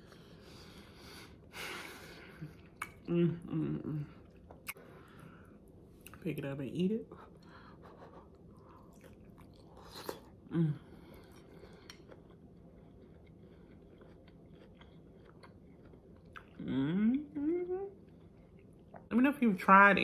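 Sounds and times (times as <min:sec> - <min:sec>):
person chewing food: 0:02.3 - 0:03.1, 0:04.1 - 0:06.2, 0:07.4 - 0:16.6, 0:18.0 - 0:19.1
person humming mm: 0:03.0 - 0:04.1, 0:10.5 - 0:10.9, 0:16.6 - 0:17.9
food crunch: 0:11.1 - 0:16.6.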